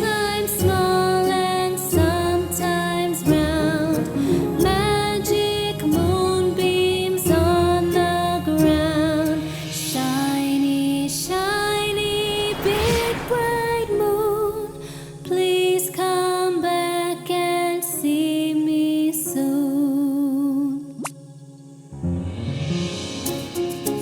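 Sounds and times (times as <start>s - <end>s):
bright children's music: 0.0s - 11.7s, 22.1s - 24.0s
whoosh sweeping: 9.7s - 15.5s.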